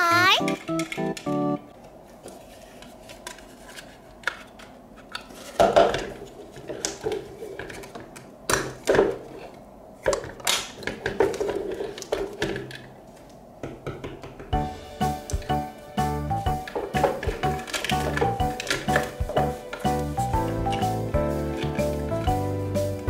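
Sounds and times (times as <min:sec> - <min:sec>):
plastic toy pieces clattering: 0:16.7 - 0:19.2.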